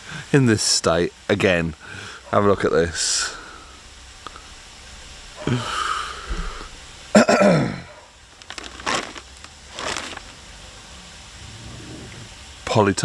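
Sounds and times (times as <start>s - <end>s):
person clearing throat or groaning: 5.4s - 7.9s.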